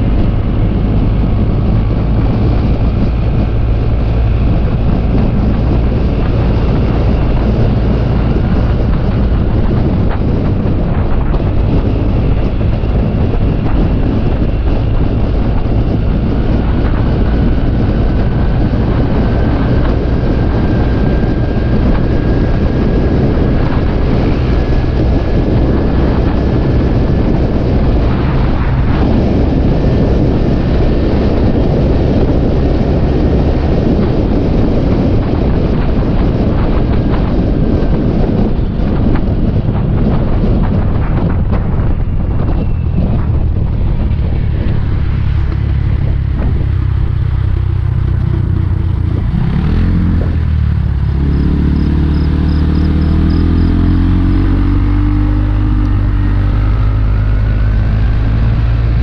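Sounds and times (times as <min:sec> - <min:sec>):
wind on microphone: 0:00.0 - 0:59.0.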